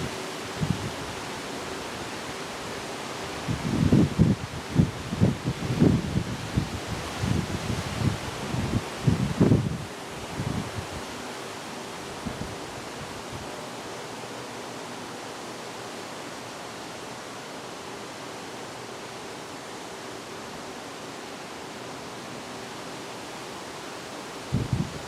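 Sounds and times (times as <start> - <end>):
wind buffeting microphone: 0.0 - 1.1, 3.4 - 11.0, 12.1 - 13.5, 24.5 - 25.0
wind blowing through trees: 0.0 - 25.0.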